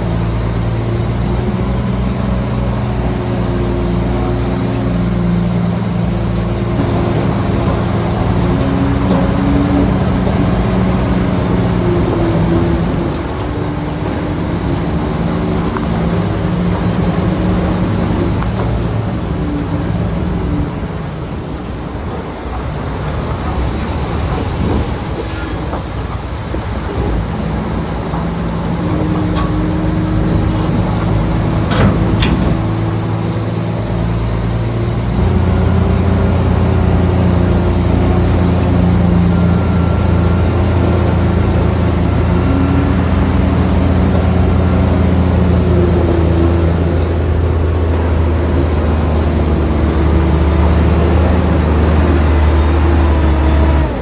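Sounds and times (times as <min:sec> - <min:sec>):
heavy diesel engine running: 0:00.0 - 0:54.0
sharp knocks: 0:28.8 - 0:33.0.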